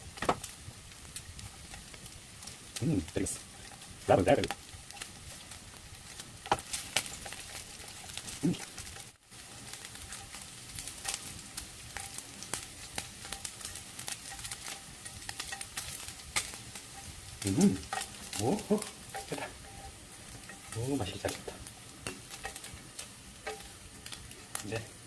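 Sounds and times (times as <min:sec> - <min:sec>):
pork sizzling over fire: 0:00.0 - 0:25.0
person speaking: 0:02.8 - 0:03.4, 0:04.0 - 0:04.5, 0:08.4 - 0:08.7, 0:17.4 - 0:19.6, 0:20.7 - 0:21.6.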